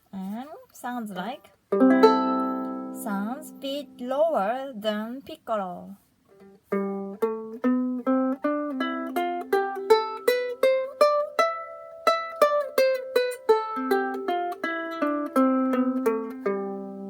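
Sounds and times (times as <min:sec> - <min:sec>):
ukulele plucked tune: 0:01.7 - 0:04.4, 0:06.3 - 0:17.0.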